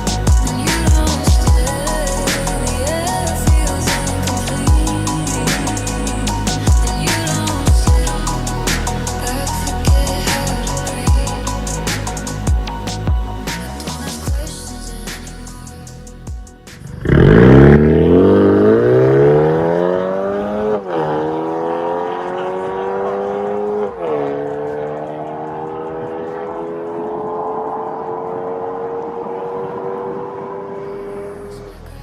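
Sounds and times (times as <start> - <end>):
car exhaust accelerating hard: 16.8 - 31.5.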